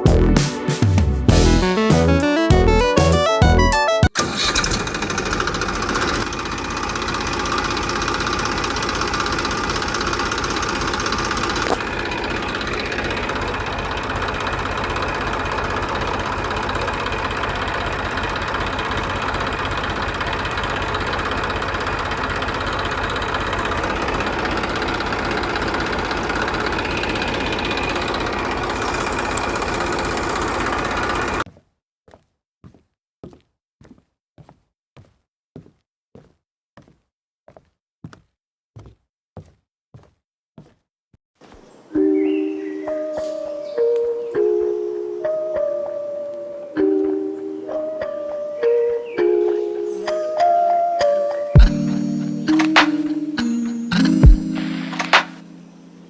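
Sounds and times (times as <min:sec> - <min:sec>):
small motor rattling hum: 0:04.5 - 0:31.4.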